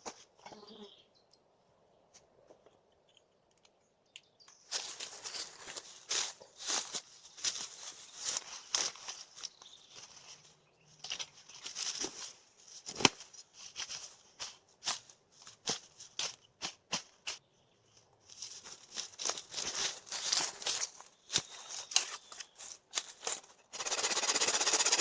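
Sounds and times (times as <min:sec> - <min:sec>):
twigs and leaves rustling: 0:04.5 - 0:25.0
twigs snapping: 0:18.9 - 0:23.5.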